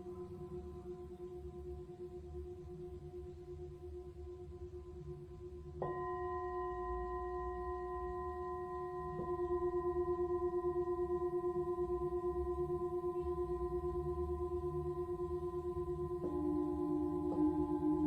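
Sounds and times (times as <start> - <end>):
singing bowl ringing: 5.8 - 18.0.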